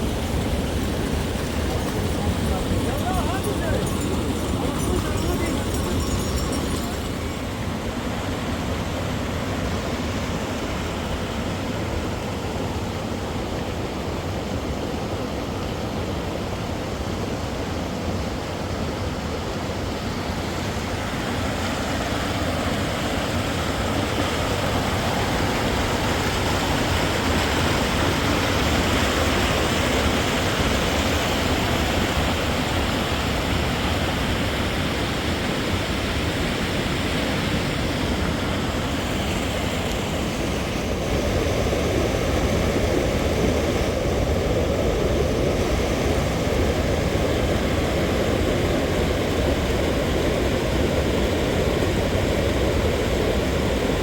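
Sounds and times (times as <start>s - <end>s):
steady rushing noise: 0.0s - 12.9s.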